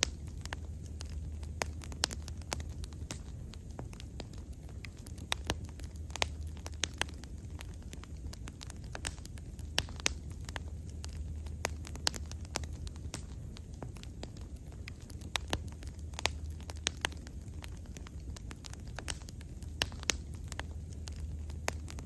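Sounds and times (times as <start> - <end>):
wood bonfire crackling and popping: 0.0 - 22.0.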